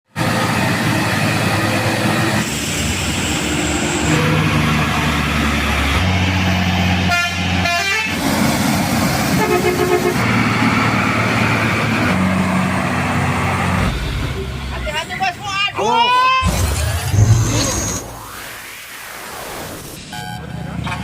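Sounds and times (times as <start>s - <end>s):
diesel truck engines climbing: 0.1s - 18.7s, 20.0s - 21.0s
truck horn toots: 7.0s - 8.2s, 9.3s - 10.6s.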